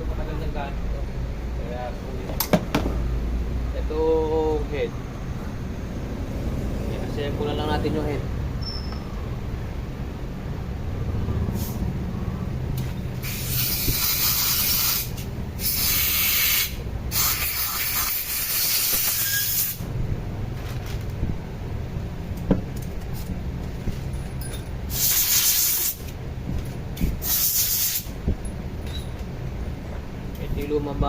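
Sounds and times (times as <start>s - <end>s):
pressurised spray hissing: 13.2s - 19.8s, 24.9s - 26.0s, 27.1s - 28.2s
low steady rumble: 19.8s - 25.0s, 26.0s - 27.3s, 28.0s - 31.0s.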